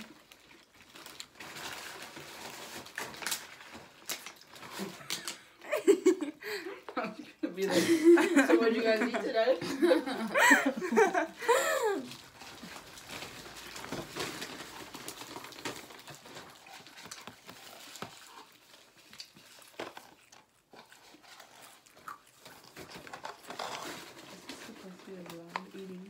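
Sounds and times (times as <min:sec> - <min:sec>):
people chewing food: 0:00.0 - 0:26.0
soft rustles: 0:22.7 - 0:26.0.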